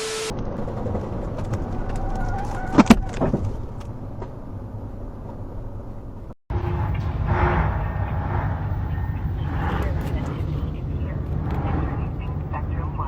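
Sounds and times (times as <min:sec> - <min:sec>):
engine running: 0:00.0 - 0:01.9, 0:05.2 - 0:13.0.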